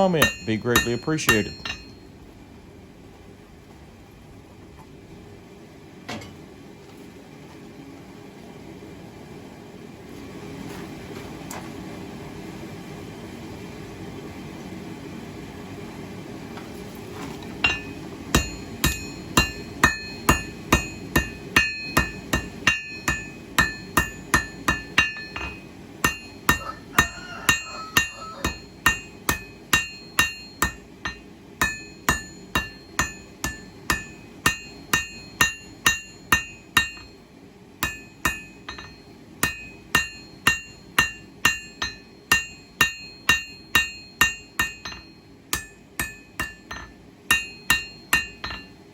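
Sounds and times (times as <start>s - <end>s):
hammer striking steel on anvil: 0.0s - 2.0s, 17.6s - 37.2s, 37.8s - 48.8s.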